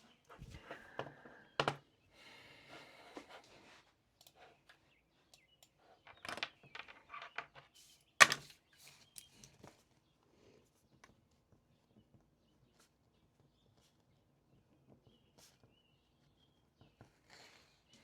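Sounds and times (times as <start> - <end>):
clicks and knocks at a desk: 6.1 - 8.6.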